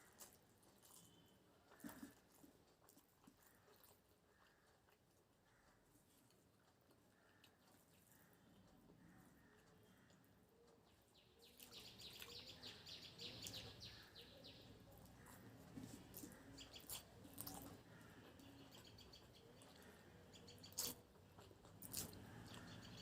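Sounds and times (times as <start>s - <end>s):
faint bird chirping: 0.0s - 2.2s, 7.0s - 21.5s, 22.2s - 23.0s
chewing clicks and squishes: 0.0s - 23.0s.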